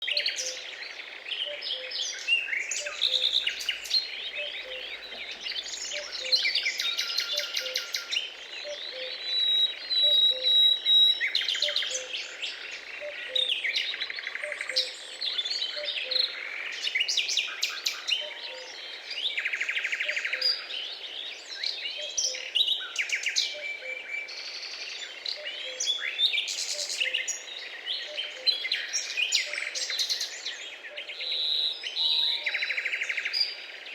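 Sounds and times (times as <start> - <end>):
birds singing and chirping: 0.0 - 33.9.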